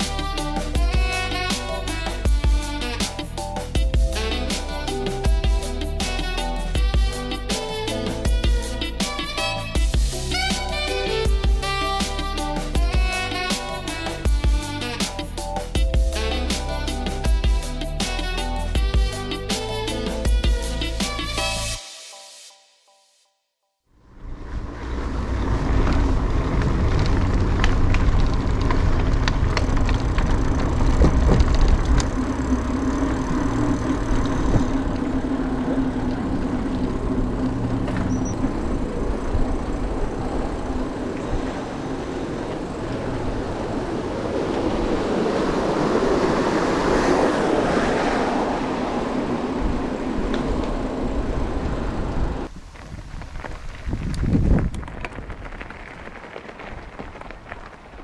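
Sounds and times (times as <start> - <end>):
wind rumbling on microphone: 24.0 - 58.0
bike tyres rolling on dirt: 24.1 - 58.0
bike knocks and rattles: 25.8 - 32.2.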